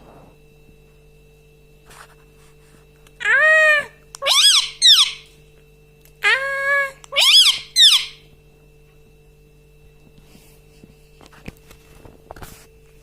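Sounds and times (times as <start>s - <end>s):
parakeet calling: 3.2s - 5.3s, 6.2s - 8.3s.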